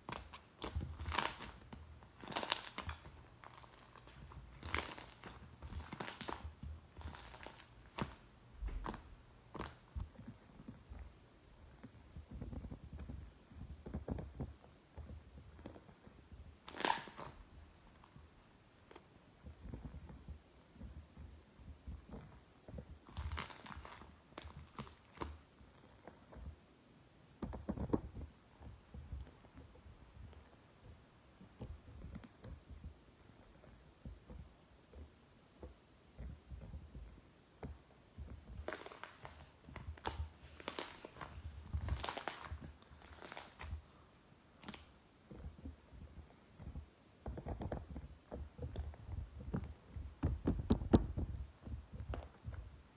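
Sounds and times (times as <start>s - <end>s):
slime squished by hand: 0.0s - 10.2s, 16.5s - 17.6s, 22.9s - 25.5s, 38.1s - 44.0s
crust crunching and crackling: 0.0s - 26.7s, 27.3s - 52.9s
soft low thuds: 45.1s - 52.9s.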